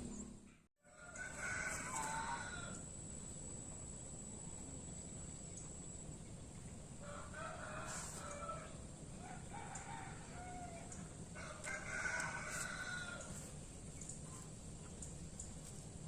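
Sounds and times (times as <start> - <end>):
rooster crowing: 0.8 - 2.9, 7.0 - 13.6.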